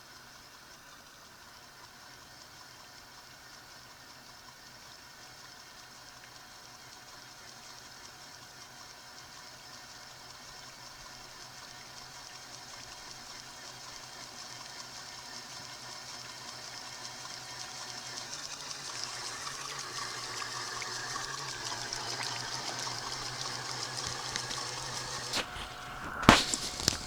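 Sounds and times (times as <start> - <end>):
water splashing and lapping: 18.6 - 27.0
sharp knock: 25.4 - 27.0.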